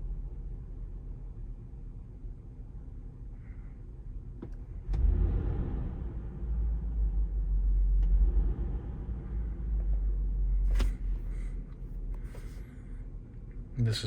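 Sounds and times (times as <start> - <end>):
car engine idling: 2.8 - 14.0.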